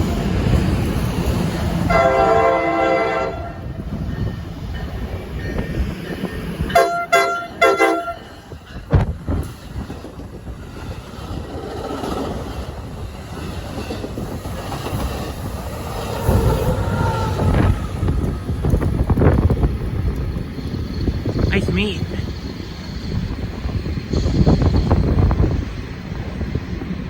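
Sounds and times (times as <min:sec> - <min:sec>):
rumble of passing trains: 0:00.0 - 0:27.0
train horn: 0:01.8 - 0:03.7, 0:06.7 - 0:08.4.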